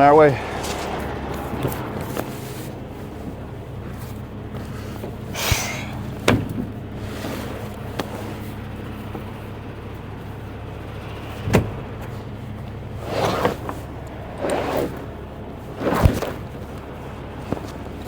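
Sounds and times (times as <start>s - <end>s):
brief swishing noise: 0.0s - 2.8s
truck engine idling: 0.0s - 18.0s.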